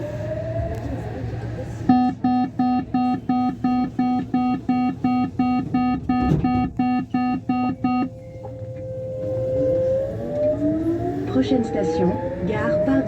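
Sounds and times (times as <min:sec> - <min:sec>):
train hum: 0:00.0 - 0:13.0
door warning beeps: 0:01.9 - 0:10.6.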